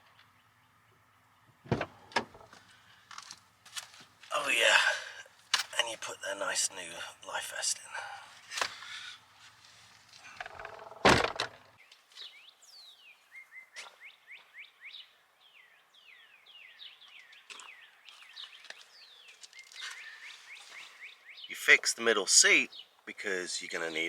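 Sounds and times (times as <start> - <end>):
birds chirping: 0.0 - 24.0
loud thunk: 10.5 - 11.6.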